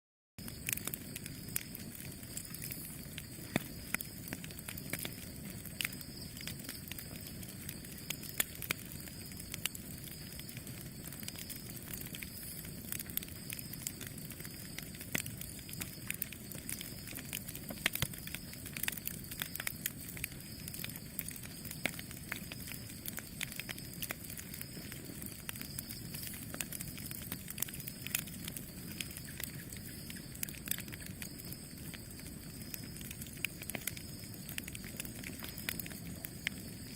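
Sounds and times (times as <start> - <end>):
campfire crackling: 0.4 - 36.9.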